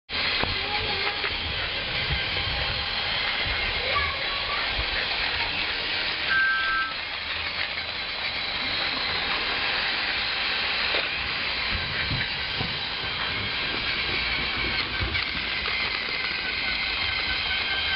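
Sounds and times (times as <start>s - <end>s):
steam train hiss: 0.1s - 17.9s
train whistle toot: 6.3s - 7.0s.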